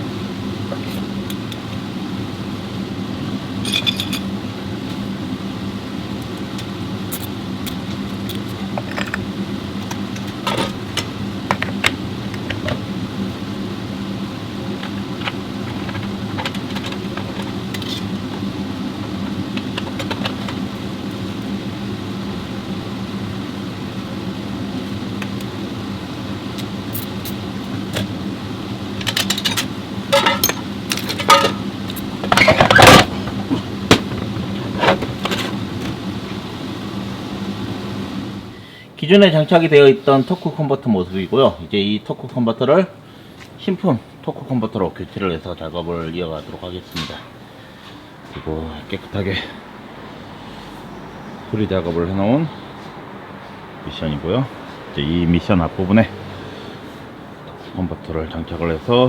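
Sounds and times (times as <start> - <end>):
steady mechanical hum: 0.0 - 59.0
metal parts and tools clinking: 3.6 - 4.3, 29.0 - 31.6
loud metal clanks: 29.1 - 31.7.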